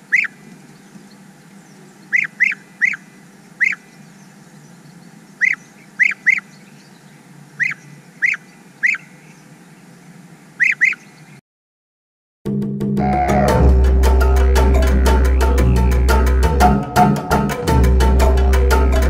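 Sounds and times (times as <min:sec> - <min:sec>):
short sharp bird calls: 0:00.0 - 0:07.0, 0:07.6 - 0:09.8, 0:10.6 - 0:11.4
steady background hiss: 0:00.0 - 0:11.4.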